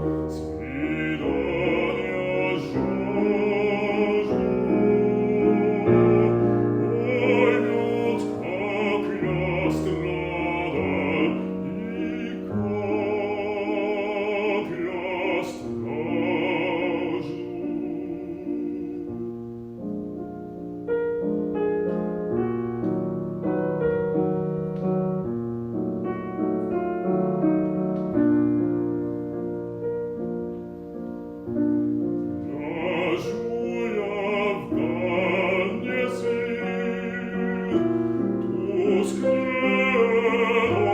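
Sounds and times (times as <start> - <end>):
bass voice singing: 0.0 - 19.6, 32.4 - 40.9
piano accompaniment: 0.0 - 40.9.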